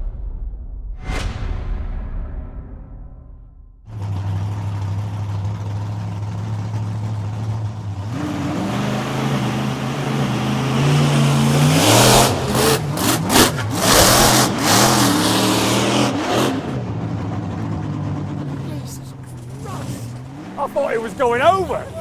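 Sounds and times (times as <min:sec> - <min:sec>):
monster truck engine revving: 0:03.9 - 0:22.0.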